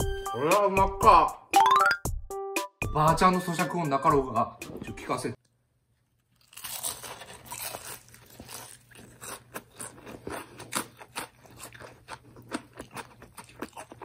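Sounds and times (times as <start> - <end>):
crunching fried chicken: 6.2 - 14.0.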